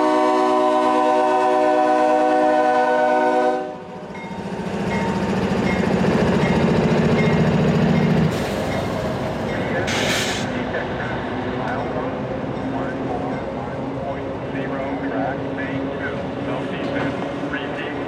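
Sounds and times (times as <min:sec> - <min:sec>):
locomotive air horn: 0:00.0 - 0:03.9
train running past: 0:00.0 - 0:18.0.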